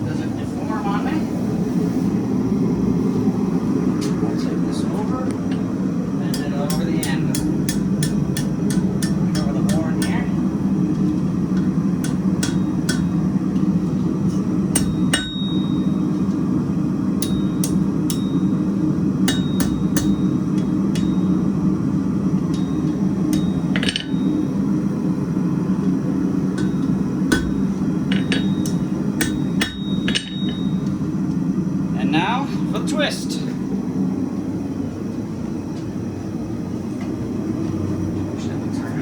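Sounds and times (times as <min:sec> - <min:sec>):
low hum: 0:00.0 - 0:32.8
hammer striking steel on anvil: 0:06.3 - 0:10.3, 0:12.0 - 0:13.2, 0:14.3 - 0:16.0, 0:17.2 - 0:18.6, 0:19.2 - 0:21.4, 0:22.5 - 0:24.6, 0:26.5 - 0:30.9.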